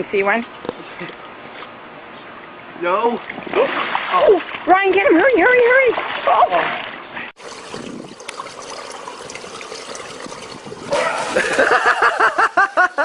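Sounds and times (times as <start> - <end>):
water trickling: 7.4 - 12.2.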